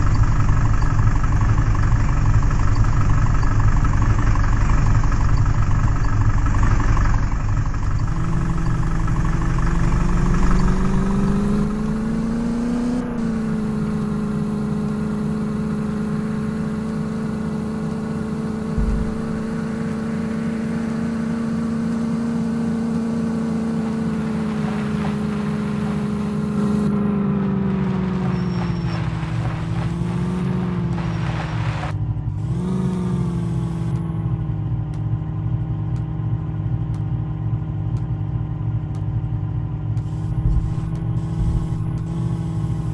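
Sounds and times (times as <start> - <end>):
tractor diesel engine rumbling: 0.0 - 42.9.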